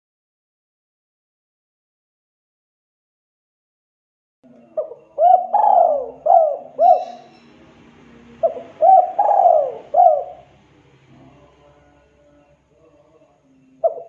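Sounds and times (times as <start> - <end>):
dove cooing: 4.5 - 11.4, 13.7 - 14.0.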